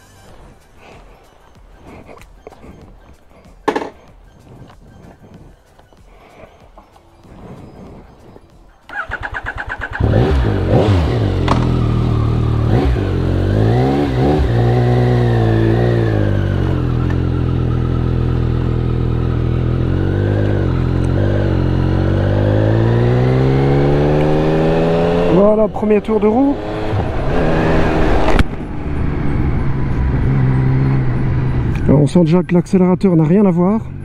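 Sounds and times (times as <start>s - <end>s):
motorcycle engine revving and idling: 6.8s - 34.0s
motorcycle engine starter cranking: 8.9s - 10.1s.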